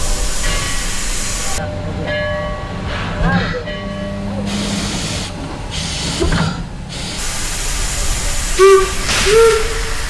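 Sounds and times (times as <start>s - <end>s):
steam venting hiss: 0.0s - 1.6s, 6.9s - 10.0s
short pitched whistle call: 8.6s - 9.9s.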